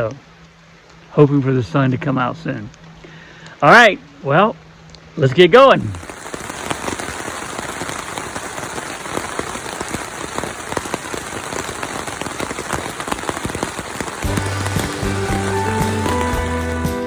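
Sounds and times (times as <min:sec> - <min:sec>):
steady rain falling: 0:00.0 - 0:17.0
raindrops ticking: 0:05.7 - 0:17.0
music: 0:14.2 - 0:17.0.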